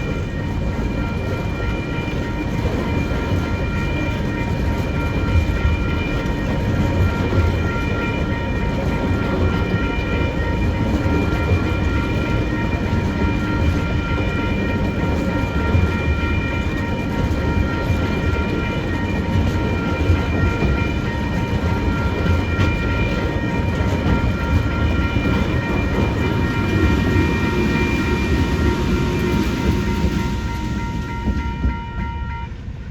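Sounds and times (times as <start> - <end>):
freight train rumbling on rails: 0.0 - 32.9
steady high whine: 23.6 - 32.5.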